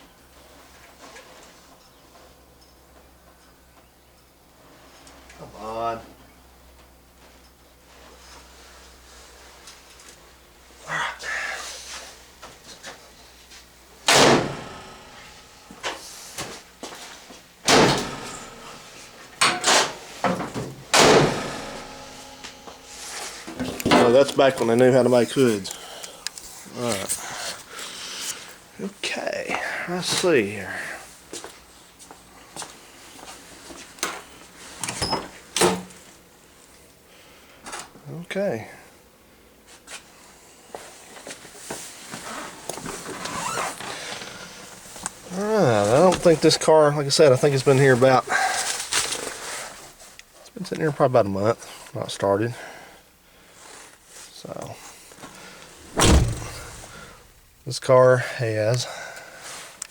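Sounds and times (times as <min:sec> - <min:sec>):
car hood slamming shut: 0:14.1 - 0:16.6, 0:17.7 - 0:24.1, 0:55.8 - 0:57.5.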